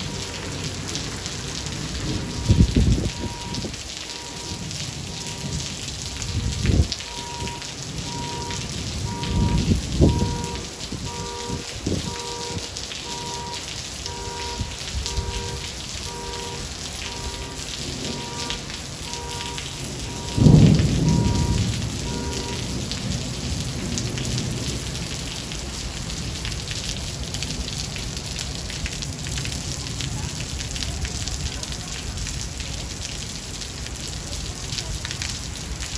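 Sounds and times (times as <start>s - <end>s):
thunder cracks and rumble: 0.0s - 26.3s
heavy rain falling: 0.0s - 35.9s.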